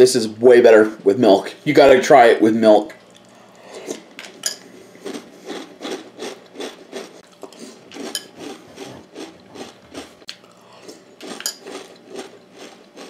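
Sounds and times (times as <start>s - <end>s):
person chewing crunchy cereal: 3.1s - 13.0s.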